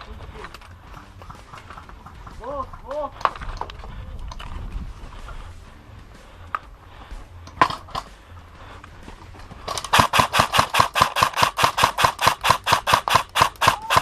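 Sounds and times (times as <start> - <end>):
airsoft gun shots: 9.9 - 14.0.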